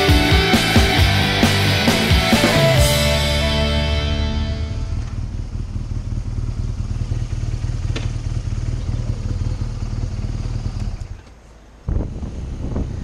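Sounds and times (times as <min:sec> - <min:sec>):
motorcycle engine rumble: 0:00.0 - 0:13.0
wind: 0:04.8 - 0:13.0.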